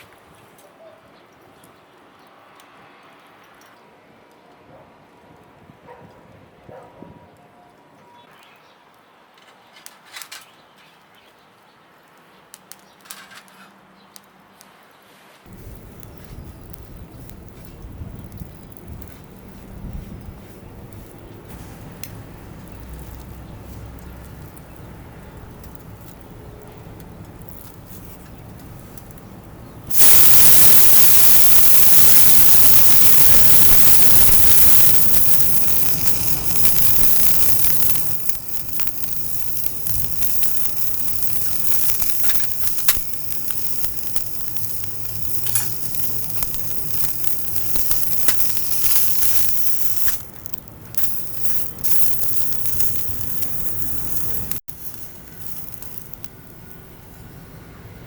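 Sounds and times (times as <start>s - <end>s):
fire crackles and pops: 8.9s - 13.5s, 15.4s - 57.7s
food sizzling on grill plate: 29.9s - 56.6s.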